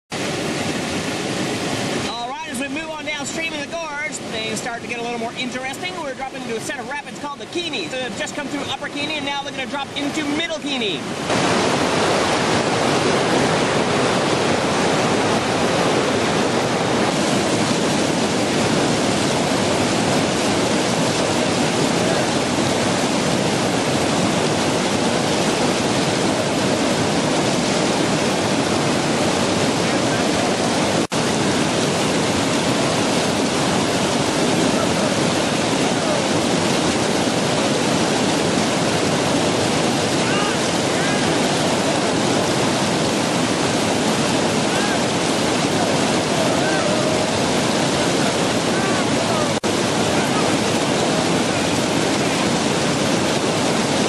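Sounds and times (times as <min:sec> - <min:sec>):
whitewater rapids rushing: 0:00.1 - 0:54.0.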